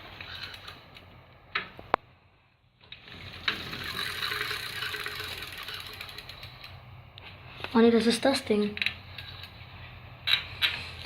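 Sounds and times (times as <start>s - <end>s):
steady mechanical rattle: 2.9s - 6.8s.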